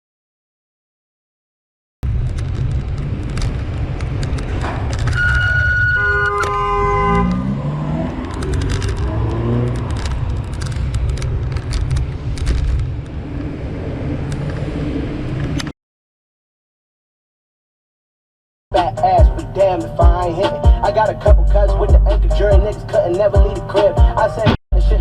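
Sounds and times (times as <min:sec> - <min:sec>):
car road and engine rumble: 0:02.0 - 0:15.7, 0:18.7 - 0:25.0
vehicle engine speeding up: 0:02.0 - 0:15.7
car horn: 0:05.1 - 0:07.6.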